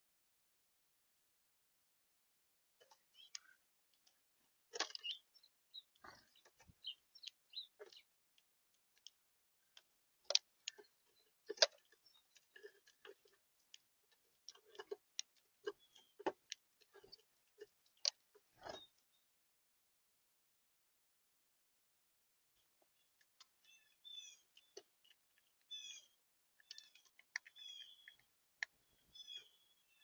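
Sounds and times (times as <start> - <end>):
pecking and cracking seed: 2.8 - 19.0, 23.2 - 29.5.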